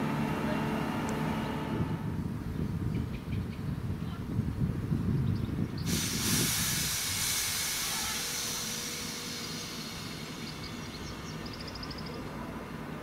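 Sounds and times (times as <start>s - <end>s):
low train rumble: 0.0s - 13.0s
sharp hiss of air: 5.8s - 11.4s.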